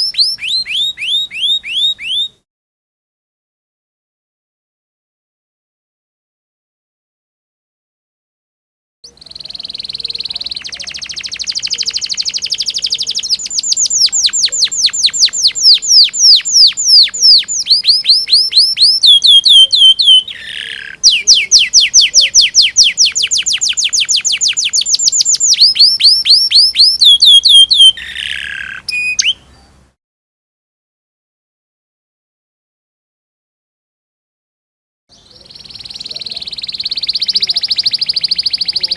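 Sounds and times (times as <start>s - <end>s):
canary singing: 0.0s - 2.4s, 9.1s - 29.8s, 35.1s - 38.9s
harsh buzzy bird phrase: 9.1s - 29.5s.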